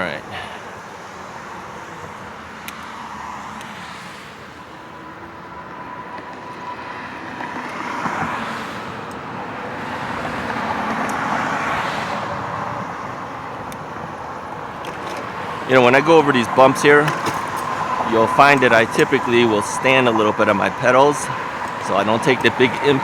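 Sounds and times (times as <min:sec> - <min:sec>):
faint steady whine: 0:12.2 - 0:23.0.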